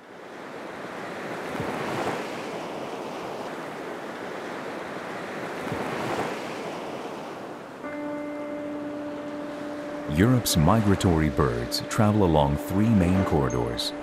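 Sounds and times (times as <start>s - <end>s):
sea waves breaking: 0.0s - 14.0s.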